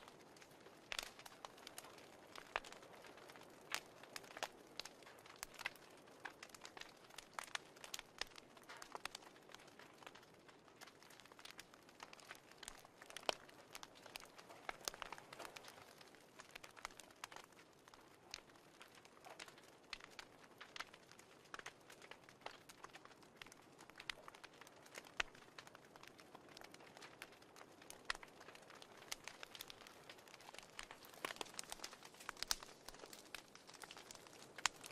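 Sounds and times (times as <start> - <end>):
fireplace crackling: 0.0 - 34.9.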